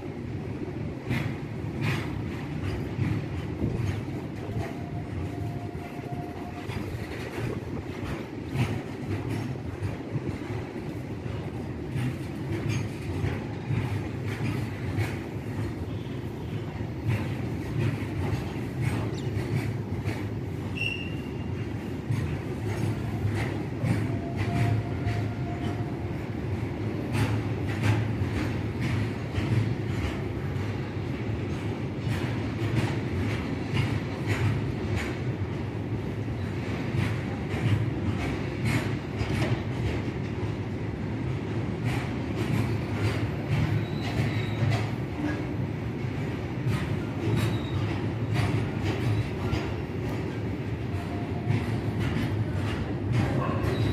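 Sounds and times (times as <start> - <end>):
freight train wagons rumbling: 0.0 - 53.9
wheels clicking over rail joints: 0.1 - 53.9
train wheel squeal: 1.1 - 10.0, 10.9 - 26.4, 36.2 - 40.0, 41.8 - 45.6, 46.7 - 53.9
faint wheel squeal: 20.7 - 21.5.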